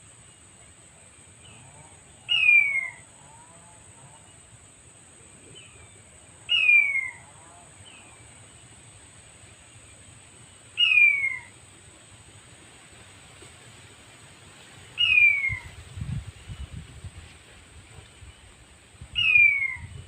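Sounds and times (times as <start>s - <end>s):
quail call descending whistle: 10.8s - 11.5s, 15.0s - 15.8s, 19.2s - 20.0s.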